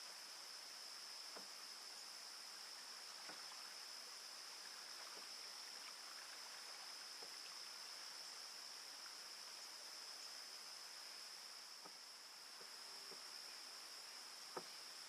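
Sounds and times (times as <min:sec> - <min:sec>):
high-pitched insect chorus: 0:00.0 - 0:15.0
canoe paddle strokes in water: 0:02.7 - 0:08.1, 0:11.8 - 0:13.6, 0:14.4 - 0:15.0.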